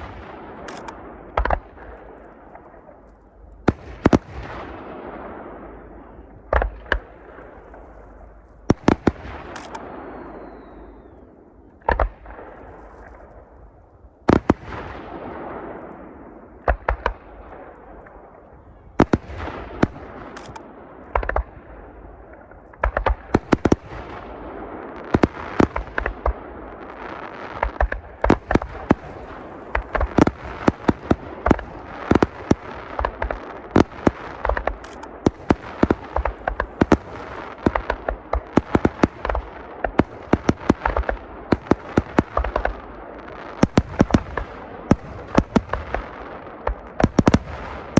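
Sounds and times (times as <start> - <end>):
fireworks bangs: 0.0 - 13.6, 14.3 - 47.9
fireworks hiss and crackle: 22.8 - 47.9.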